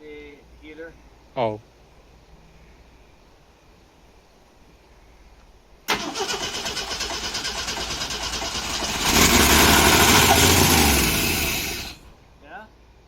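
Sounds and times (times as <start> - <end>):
car engine cranking and running: 5.9 - 12.1.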